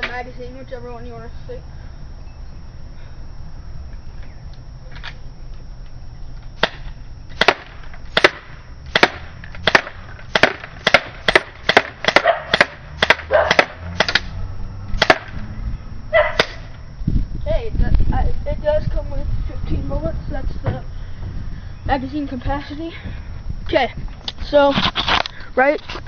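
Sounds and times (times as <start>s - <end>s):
bb pistol shots popping: 6.6s - 14.4s, 15.0s - 15.5s, 16.2s - 16.8s.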